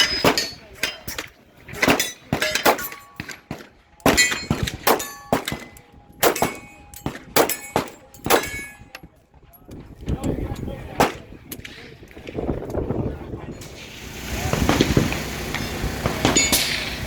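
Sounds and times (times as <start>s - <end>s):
steel targets ringing: 0.0s - 9.0s, 16.0s - 17.0s
pistol shots: 1.8s - 8.9s.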